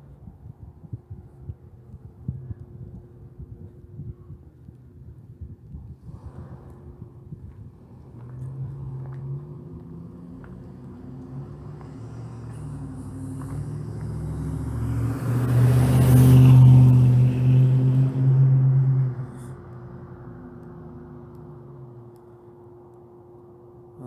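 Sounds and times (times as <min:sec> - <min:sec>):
car driving past: 0:06.1 - 0:22.1.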